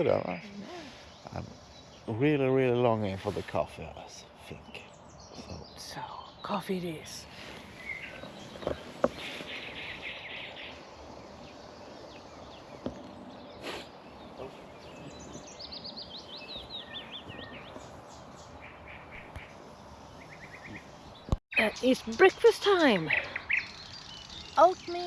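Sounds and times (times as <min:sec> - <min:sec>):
background hiss: 0:00.0 - 0:18.5
songbirds singing: 0:00.0 - 0:25.0.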